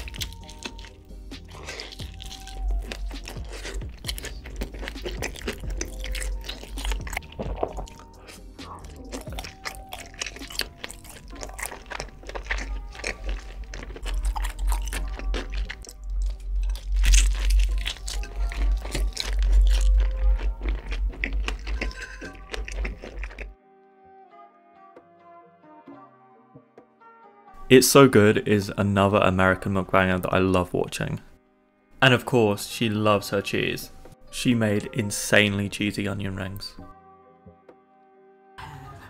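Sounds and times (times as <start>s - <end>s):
background music with heavy bass: 0.0s - 23.4s
chewing and crunching fried chicken: 0.0s - 23.6s.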